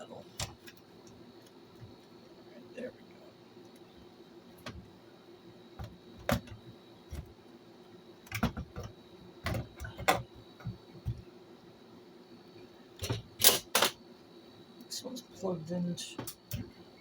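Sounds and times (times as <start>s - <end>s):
faint steady hum: 0.0s - 17.0s
clicks and knocks of small parts: 13.0s - 14.0s.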